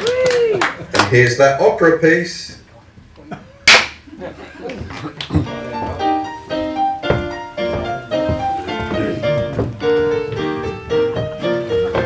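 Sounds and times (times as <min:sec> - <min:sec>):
piano playing: 0:05.4 - 0:12.0.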